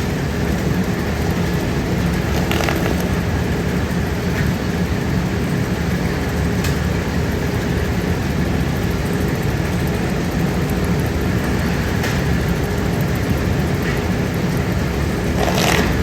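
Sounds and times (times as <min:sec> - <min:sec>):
heavy machinery rumbling: 0:00.0 - 0:05.7, 0:11.4 - 0:16.0.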